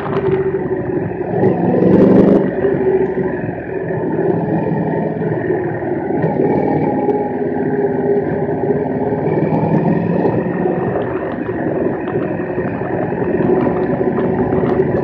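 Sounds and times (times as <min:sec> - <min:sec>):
motorcycle engine running: 0:00.0 - 0:15.0
wind rush on microphone: 0:00.0 - 0:15.0.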